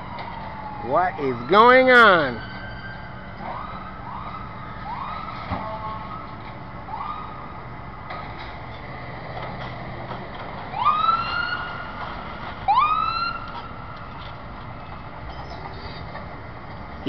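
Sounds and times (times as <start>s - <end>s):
siren whoops: 0.0s - 7.6s, 10.7s - 12.0s, 12.7s - 13.6s.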